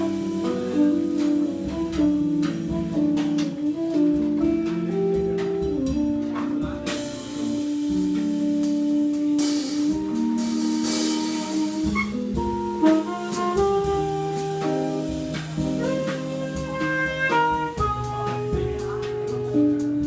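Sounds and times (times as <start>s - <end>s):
guitar: 0.0s - 20.0s
light drums: 0.0s - 20.0s
tenor saxophone: 0.0s - 20.0s.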